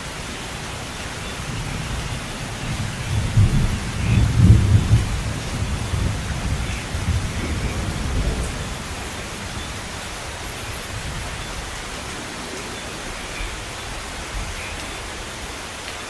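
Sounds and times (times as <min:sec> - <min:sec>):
heavy rain hissing: 0:00.0 - 0:16.0
low thunder rumble: 0:01.2 - 0:11.8.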